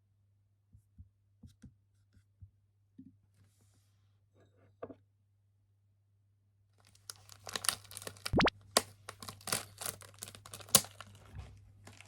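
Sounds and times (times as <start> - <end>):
crinkling and clicking objects: 6.8 - 12.0.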